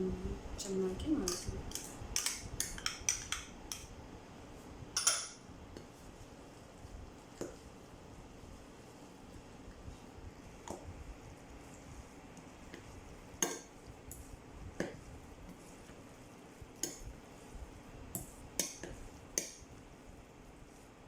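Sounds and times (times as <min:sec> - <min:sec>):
spoon clinking against bowl: 0:05.0 - 0:05.4.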